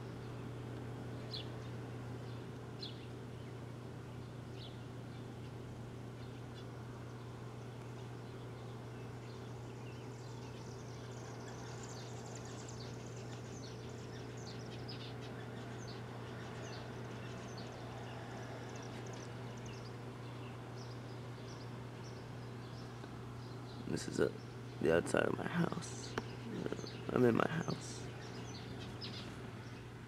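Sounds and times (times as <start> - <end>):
small birds chirping: 0.0 - 30.0
steady low hum: 0.0 - 30.0.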